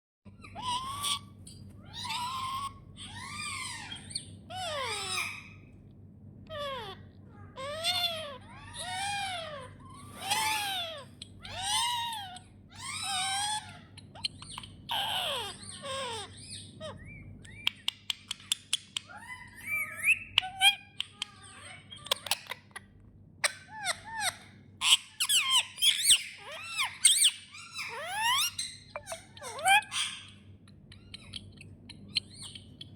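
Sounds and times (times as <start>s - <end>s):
parrot calling: 0.4s - 5.8s, 6.5s - 22.8s, 23.4s - 32.9s
parrot clicks and chirps: 17.4s - 19.2s.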